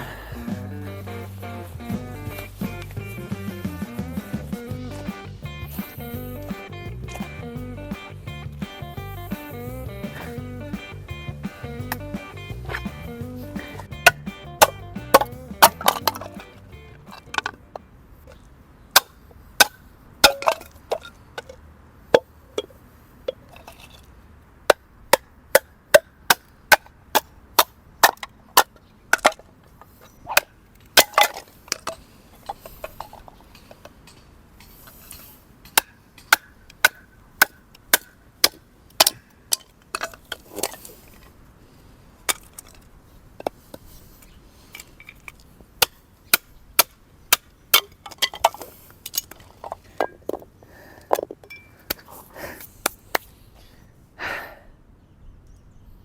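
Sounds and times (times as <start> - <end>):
wood being chopped: 11.4 - 17.6, 19.0 - 20.8, 30.3 - 31.5, 35.7 - 40.8, 45.8 - 48.6.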